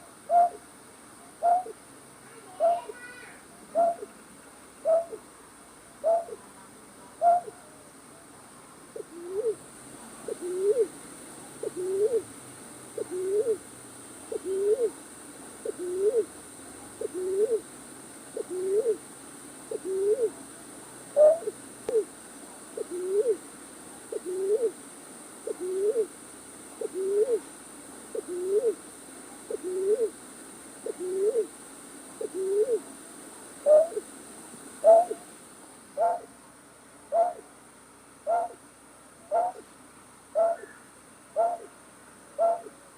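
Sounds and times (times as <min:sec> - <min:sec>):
night bird hooting: 0:00.3 - 0:00.6, 0:01.4 - 0:01.8, 0:03.7 - 0:04.1, 0:04.8 - 0:05.2, 0:06.0 - 0:06.4, 0:07.2 - 0:07.7, 0:09.0 - 0:09.6, 0:10.3 - 0:10.9, 0:11.6 - 0:12.3, 0:13.0 - 0:13.6, 0:14.3 - 0:15.0, 0:15.6 - 0:16.3, 0:17.0 - 0:17.6, 0:18.4 - 0:19.0, 0:19.7 - 0:20.4, 0:21.1 - 0:22.1, 0:22.8 - 0:23.4, 0:24.1 - 0:24.8, 0:25.4 - 0:26.1, 0:26.8 - 0:27.5, 0:28.1 - 0:28.8, 0:29.5 - 0:30.2, 0:30.8 - 0:31.5, 0:32.2 - 0:32.8, 0:33.6 - 0:34.1, 0:34.8 - 0:35.3, 0:36.0 - 0:36.3, 0:37.1 - 0:37.5, 0:38.2 - 0:38.6, 0:39.3 - 0:39.7, 0:40.3 - 0:41.7, 0:42.4 - 0:42.8.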